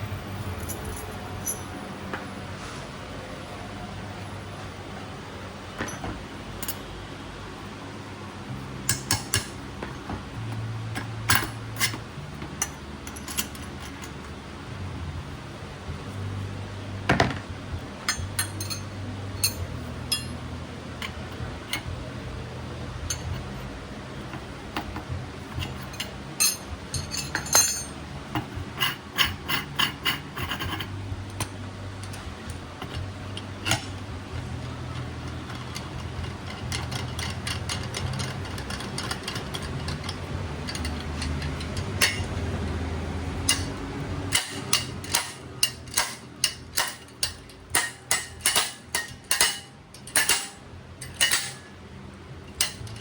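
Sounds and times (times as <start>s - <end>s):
steady low hum: 0.0s - 53.0s
hand tools clicking on metal: 8.9s - 14.2s, 18.1s - 22.0s, 23.1s - 23.6s, 24.2s - 42.8s, 43.4s - 51.7s, 52.4s - 53.0s.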